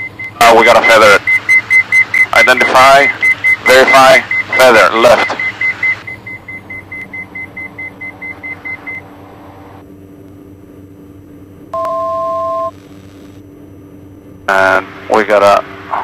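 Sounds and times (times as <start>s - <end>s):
rapid high warning beeps: 0.0s - 9.0s
aircraft engine drone: 0.0s - 16.0s.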